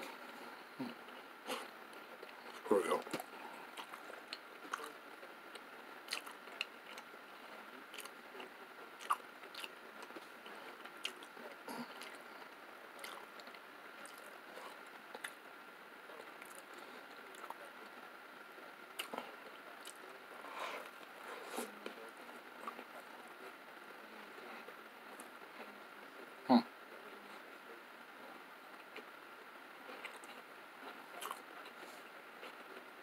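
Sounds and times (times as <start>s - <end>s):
person chewing pizza: 0.8s - 7.2s, 7.9s - 15.4s, 18.9s - 21.8s, 29.9s - 30.4s, 31.2s - 32.6s.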